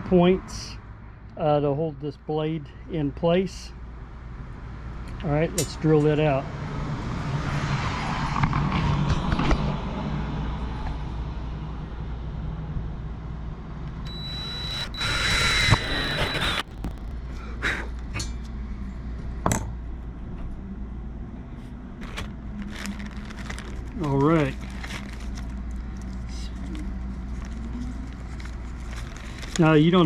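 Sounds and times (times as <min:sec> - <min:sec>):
electric drill whining: 0:14.1 - 0:17.1.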